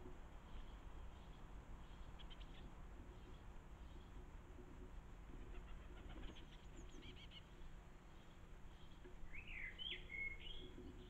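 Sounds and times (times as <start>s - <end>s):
songbird chirping: 5.6s - 11.0s
whistled birdsong phrase: 9.3s - 10.6s.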